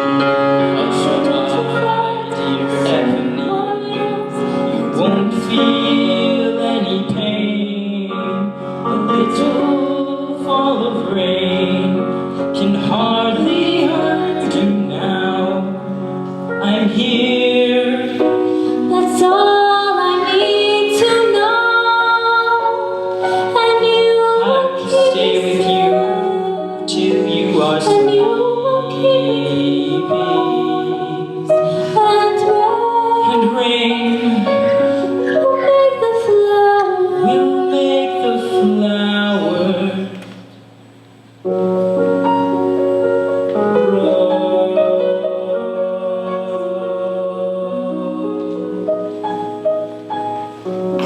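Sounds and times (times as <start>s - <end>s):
musical accompaniment: 0.0s - 51.0s
woman singing a slow ballad: 18.8s - 29.5s, 31.8s - 40.1s.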